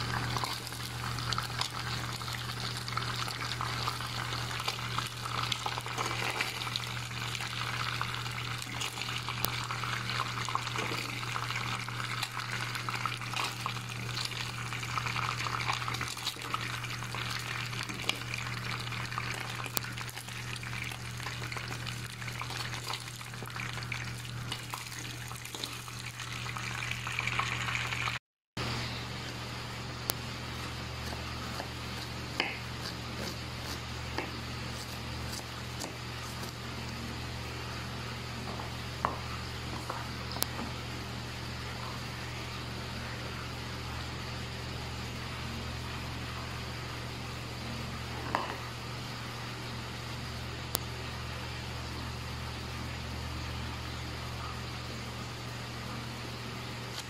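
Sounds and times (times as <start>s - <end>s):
chicken deep-frying in oil: 0.0s - 57.0s.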